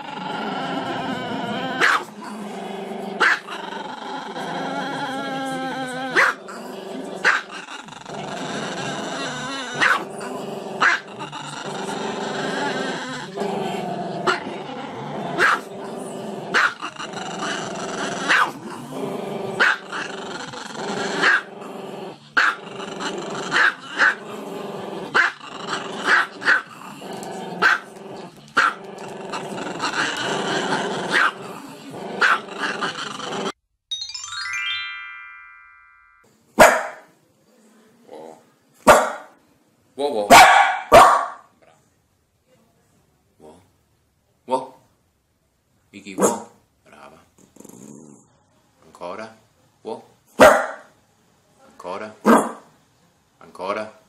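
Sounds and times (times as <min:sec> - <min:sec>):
music playing: 0:33.9 - 0:36.2.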